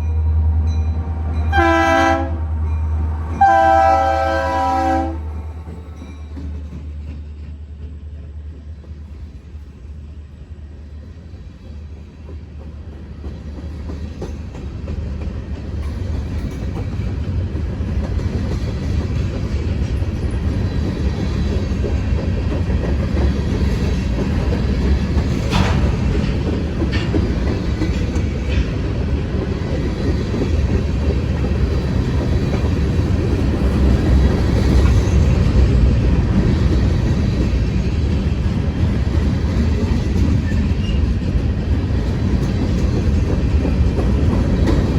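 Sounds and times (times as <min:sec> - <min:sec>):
diesel locomotive rumbling: 0:00.0 - 0:44.9
wheels clicking over rails: 0:12.3 - 0:44.9.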